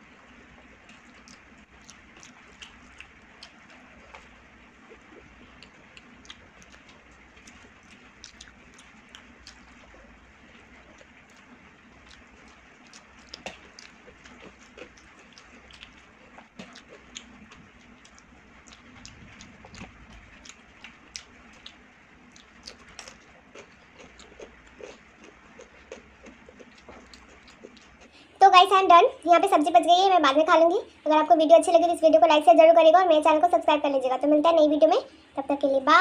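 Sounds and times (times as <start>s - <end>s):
mouth chewing food: 0.3s - 28.3s.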